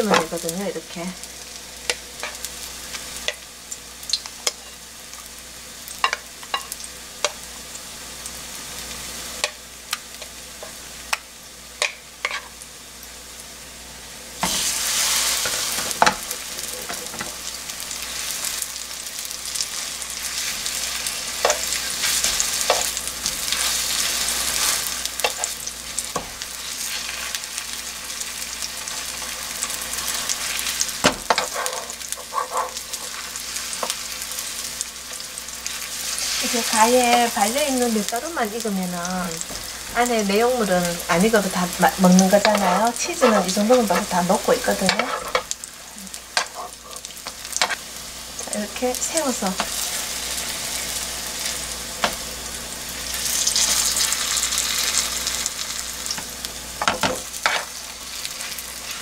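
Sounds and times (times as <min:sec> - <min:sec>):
oil sizzling in a frying pan: 0:00.0 - 0:59.0
tongs and spoon clicking on pan: 0:06.0 - 0:07.4, 0:09.4 - 0:10.3, 0:11.8 - 0:12.4.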